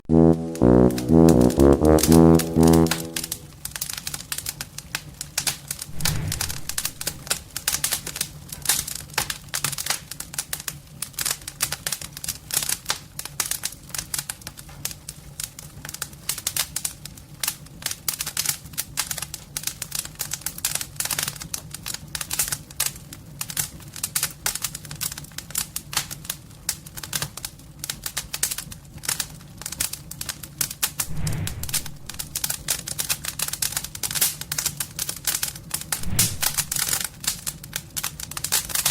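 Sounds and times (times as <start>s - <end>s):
fire crackling: 5.8s - 7.6s, 31.0s - 32.7s, 35.9s - 37.0s.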